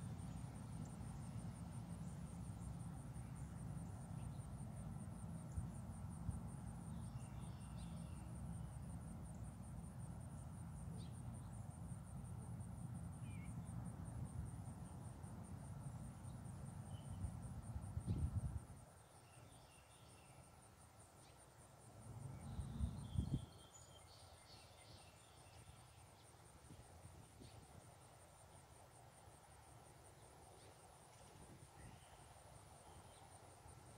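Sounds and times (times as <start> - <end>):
wind rumble on microphone: 17.0 - 18.8, 22.3 - 23.6.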